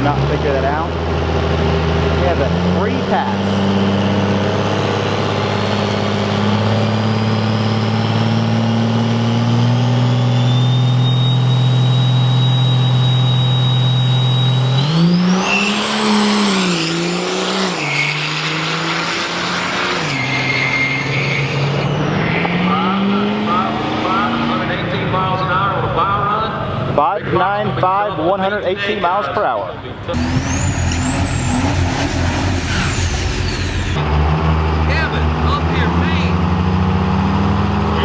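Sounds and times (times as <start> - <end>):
high engine whine: 0.0 - 26.9, 30.1 - 36.2
drag racer engine revving: 0.0 - 27.0, 30.1 - 38.0.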